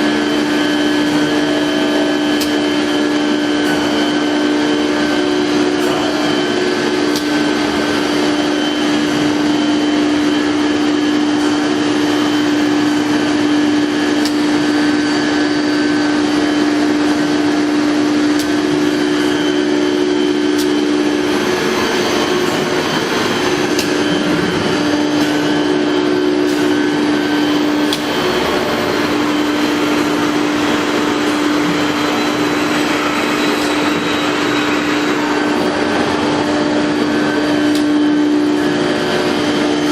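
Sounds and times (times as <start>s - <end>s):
cnc router spindle whine: 0.0s - 39.9s
machining noise: 19.0s - 39.9s.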